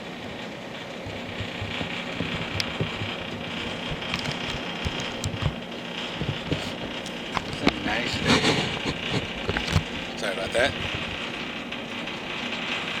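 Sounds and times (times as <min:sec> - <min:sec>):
low mechanical hum: 0:00.0 - 0:13.0
short clicks and knocks: 0:01.1 - 0:05.6.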